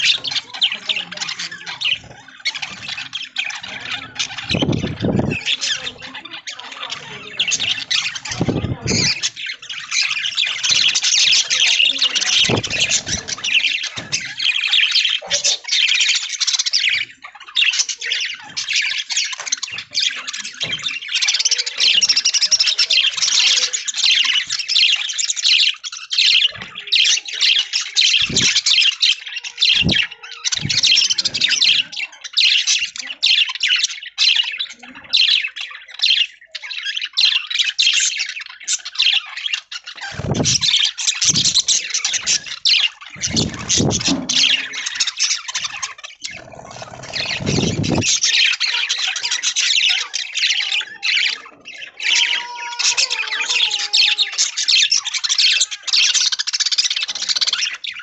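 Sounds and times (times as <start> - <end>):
budgerigars chattering: 0.0 - 58.0.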